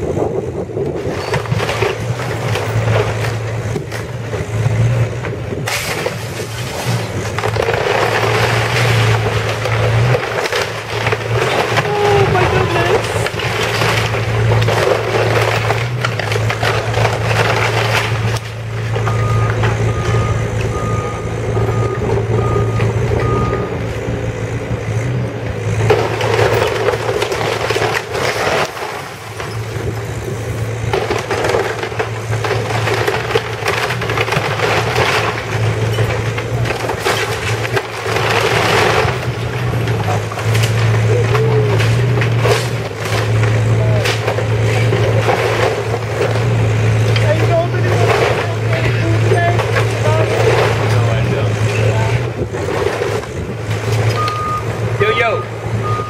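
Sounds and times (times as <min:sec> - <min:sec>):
diesel engine running: 0:00.0 - 0:56.0
structure crushing and cracking: 0:00.0 - 0:56.0
reversing alarm beeps: 0:19.1 - 0:23.7, 0:54.2 - 0:54.7, 0:55.3 - 0:56.0.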